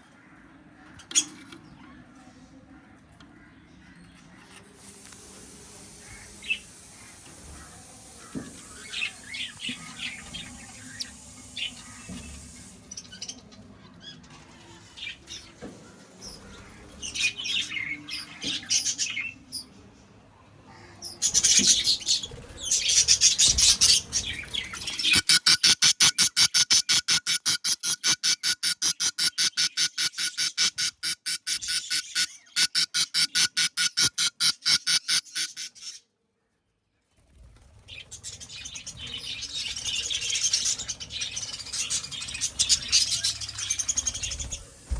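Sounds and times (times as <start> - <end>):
budgies chirping and squawking: 21.2 - 36.0
fast pulsing bird calls: 22.8 - 35.9.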